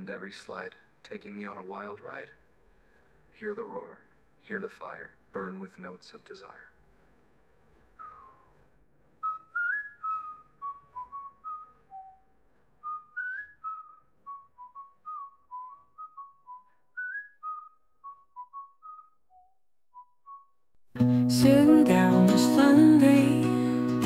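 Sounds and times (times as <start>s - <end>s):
person whistling a tune: 8.0s - 8.5s, 9.2s - 12.2s, 12.8s - 20.4s.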